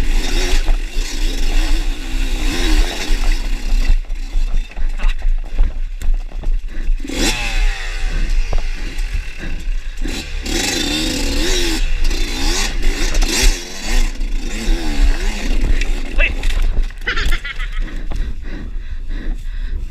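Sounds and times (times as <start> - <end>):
dirt bike engine revving: 0.0 - 18.8
wind rumble on microphone: 2.6 - 10.4.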